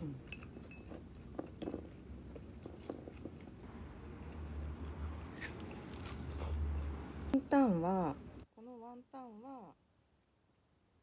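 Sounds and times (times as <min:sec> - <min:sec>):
chewing crunchy fried food: 0:00.0 - 0:07.4.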